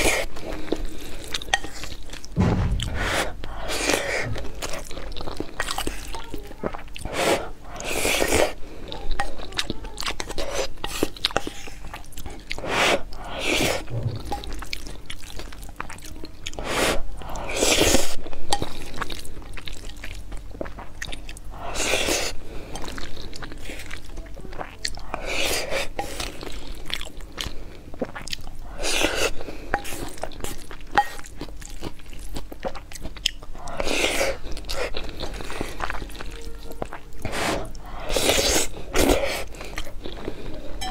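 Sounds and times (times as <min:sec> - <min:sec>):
spoon scraping a bowl: 0:01.5 - 0:02.0
chewing with wet mouth clicks: 0:18.6 - 0:21.4, 0:26.0 - 0:28.6, 0:29.7 - 0:33.9.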